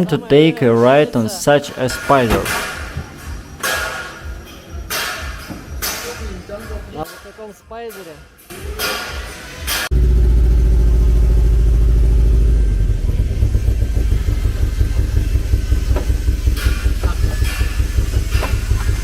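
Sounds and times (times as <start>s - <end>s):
sports car engine idling: 9.9s - 19.0s.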